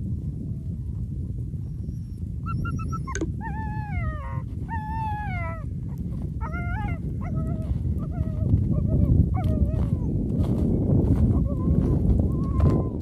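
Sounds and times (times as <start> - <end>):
sled dogs whining and yipping: 1.6 - 10.1, 11.2 - 13.0.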